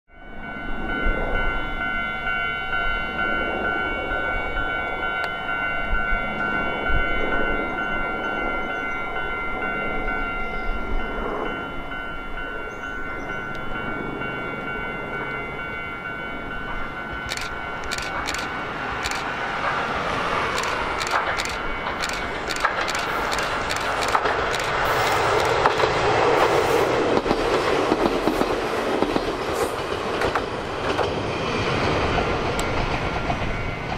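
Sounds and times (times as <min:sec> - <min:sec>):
electric train running past: 0:00.1 - 0:33.9
wheels clicking over rail joints: 0:17.2 - 0:31.3.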